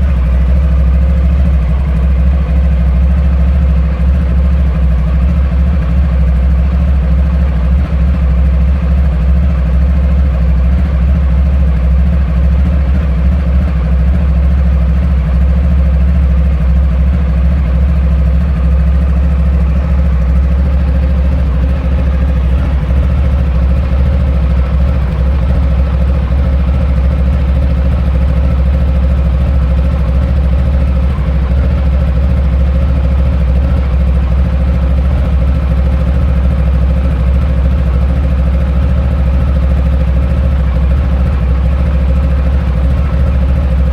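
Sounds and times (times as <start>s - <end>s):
motorcycle engine idling: 0.0s - 43.9s.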